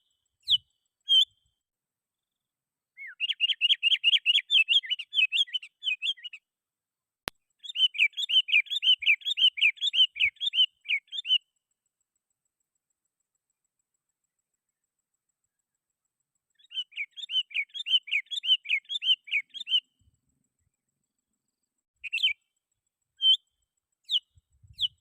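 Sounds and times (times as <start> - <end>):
bird chirping rapidly: 0.0 - 1.4, 3.0 - 6.4, 7.5 - 11.6, 16.5 - 20.0, 22.0 - 22.6, 23.2 - 25.0.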